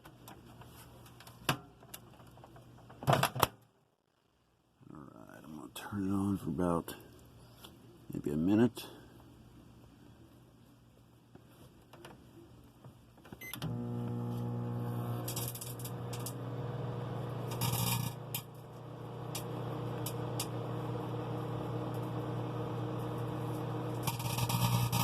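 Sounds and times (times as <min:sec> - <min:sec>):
microwave electrical hum: 0:13.2 - 0:25.0
crackles and snaps of sparking: 0:15.2 - 0:16.4, 0:17.4 - 0:20.6, 0:23.5 - 0:25.0.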